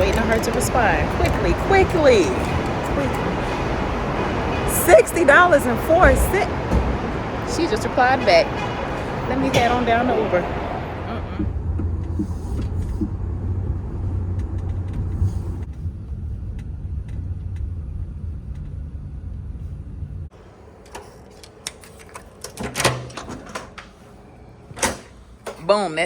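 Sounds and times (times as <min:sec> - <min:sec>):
car interior rumble: 0:00.0 - 0:20.3.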